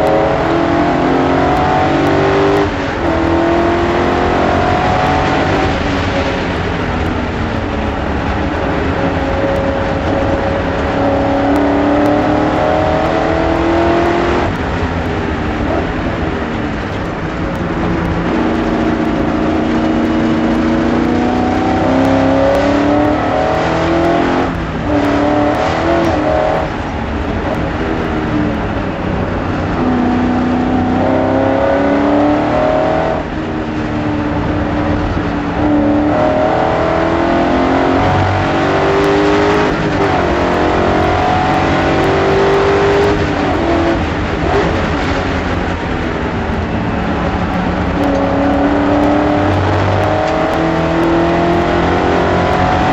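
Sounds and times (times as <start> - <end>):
race car engine accelerating: 0.0 - 52.9.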